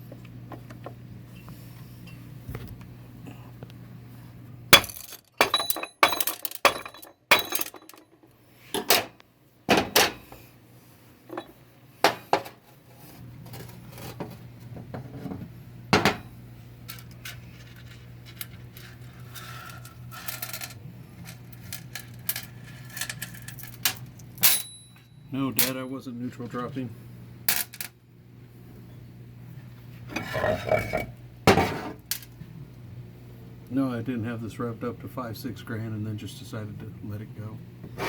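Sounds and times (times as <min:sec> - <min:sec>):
steady low hum: 0:00.0 - 0:38.0
metal parts clinking: 0:04.8 - 0:08.1, 0:16.9 - 0:24.8.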